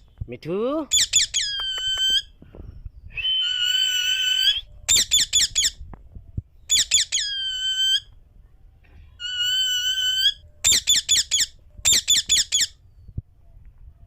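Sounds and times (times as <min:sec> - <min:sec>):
parakeet whistling and chirping: 0:00.9 - 0:02.3, 0:03.1 - 0:05.8, 0:06.6 - 0:08.1, 0:09.2 - 0:13.1.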